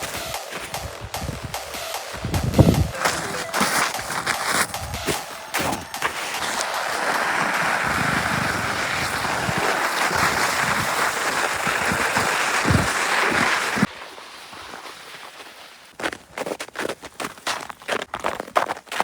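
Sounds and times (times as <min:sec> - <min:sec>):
low thumps: 0:00.0 - 0:03.1
sliding on icy snow: 0:00.0 - 0:19.0.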